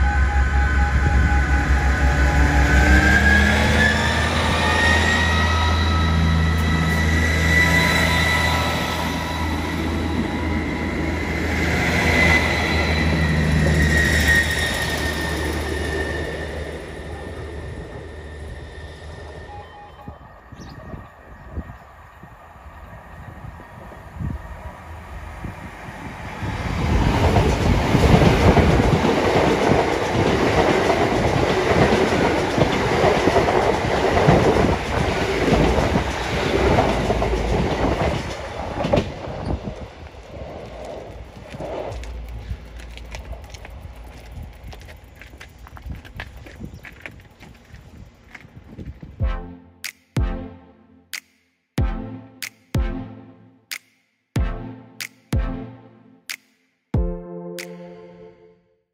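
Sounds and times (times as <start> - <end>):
steady high whine: 0.0 - 26.6
diesel train passing at speed: 0.0 - 49.0.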